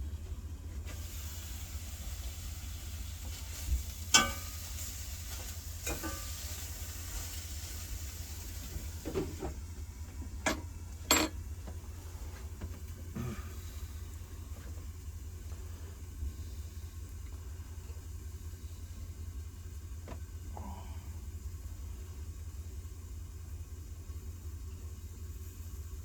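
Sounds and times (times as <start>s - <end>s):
low steady hum: 0.0s - 26.0s
food sizzling in a pan: 0.9s - 9.2s.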